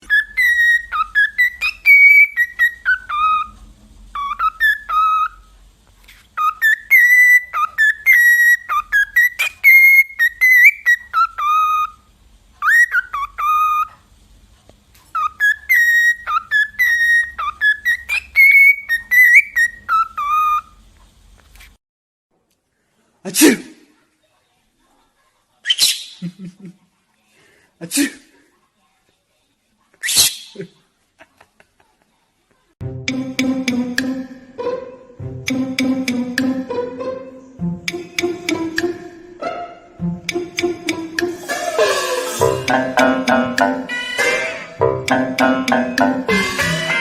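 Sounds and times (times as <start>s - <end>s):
bird whistling a tune: 0.0s - 3.5s, 4.2s - 5.4s, 6.4s - 12.0s, 12.6s - 13.9s, 15.2s - 20.7s.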